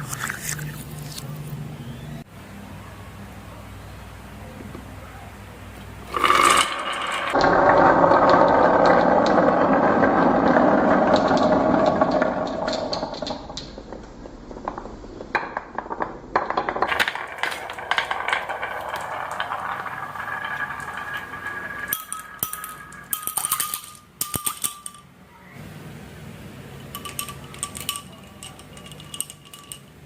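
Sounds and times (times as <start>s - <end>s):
marbles clattering down marble run: 6.1s - 25.1s, 27.0s - 29.9s.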